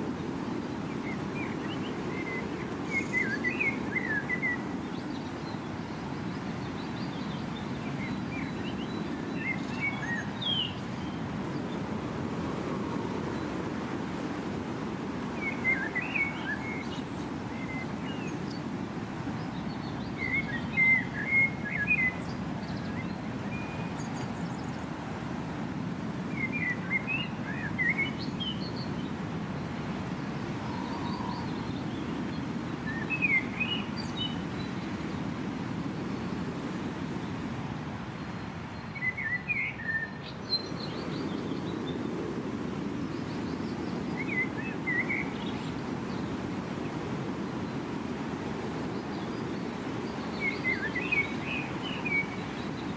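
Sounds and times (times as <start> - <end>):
bird chirping: 30.4 - 35.0.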